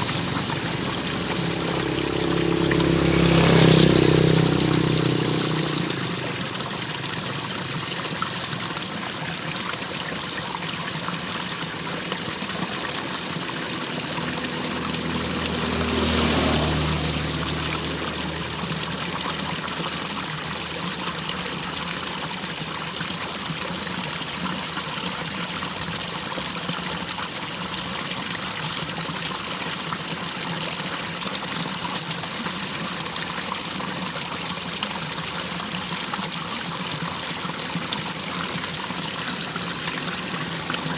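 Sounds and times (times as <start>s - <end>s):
water rushing in a ditch: 0.0s - 40.9s.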